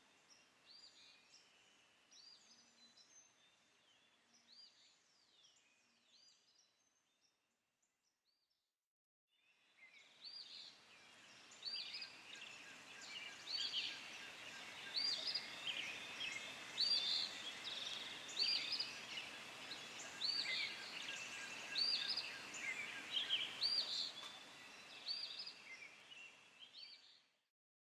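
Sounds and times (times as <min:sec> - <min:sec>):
steady outdoor hiss: 0:00.0 - 0:06.2, 0:09.6 - 0:27.4
birds chirping: 0:11.3 - 0:27.0.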